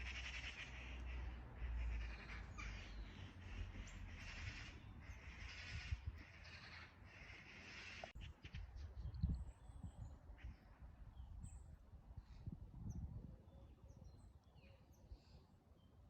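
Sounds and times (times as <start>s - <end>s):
birds calling: 0.0s - 8.6s.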